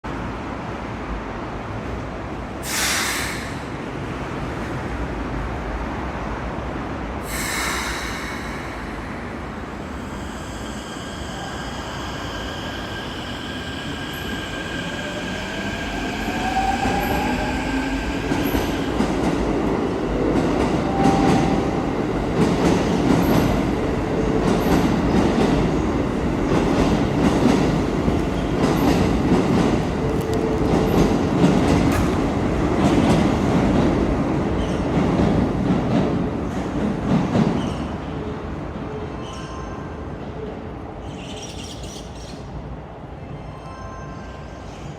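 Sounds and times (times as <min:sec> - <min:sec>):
train air hisses: 0:02.6 - 0:04.0, 0:07.2 - 0:18.9
train wheel rumble with clicking: 0:26.4 - 0:34.0.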